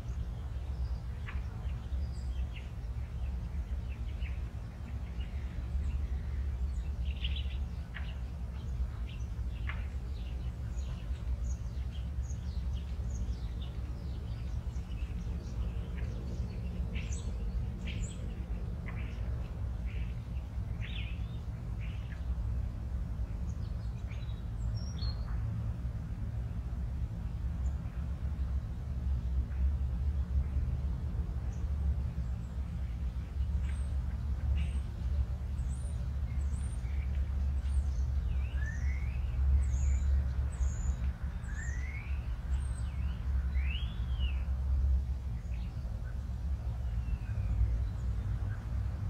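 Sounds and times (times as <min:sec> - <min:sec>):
steady low rumble: 0:00.0 - 0:49.0
birds chirping: 0:31.4 - 0:49.0.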